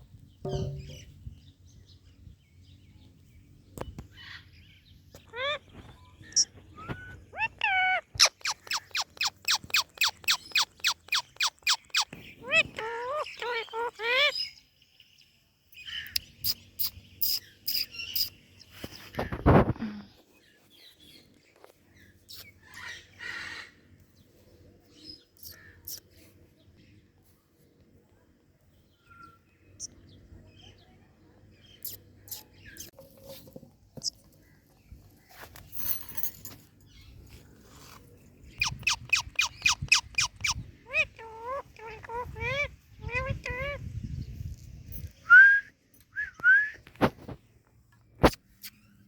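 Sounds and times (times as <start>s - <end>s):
parrot chirping: 6.4s - 14.4s, 16.1s - 18.3s, 38.6s - 43.8s
harsh parrot squawk: 38.6s - 43.8s.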